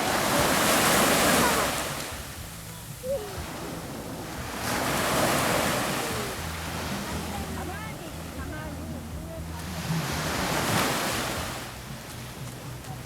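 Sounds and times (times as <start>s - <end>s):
sea waves breaking on beach: 0.0s - 13.0s
faint voice: 2.6s - 3.7s, 5.8s - 9.8s.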